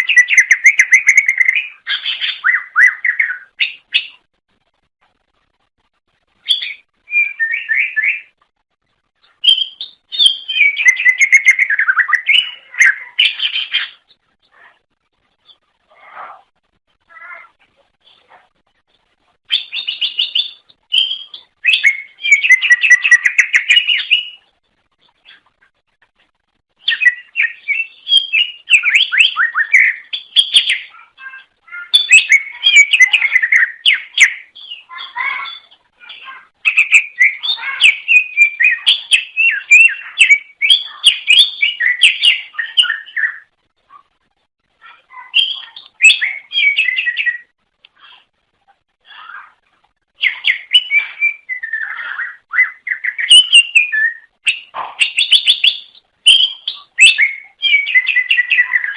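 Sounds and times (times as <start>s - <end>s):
bird chirping and whistling: 0.0s - 4.2s, 6.4s - 8.3s, 9.3s - 14.0s, 19.5s - 24.4s, 26.8s - 43.5s, 45.2s - 47.5s, 50.2s - 58.9s.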